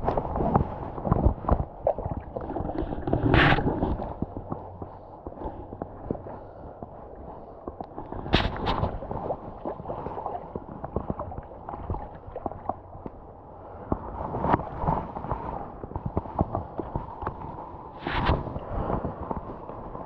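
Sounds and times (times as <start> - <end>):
water splashing and gurgling: 0.0 - 20.0.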